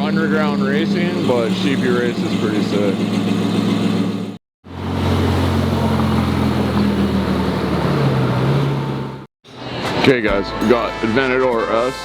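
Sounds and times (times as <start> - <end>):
sports car engine idling: 0.0 - 4.3.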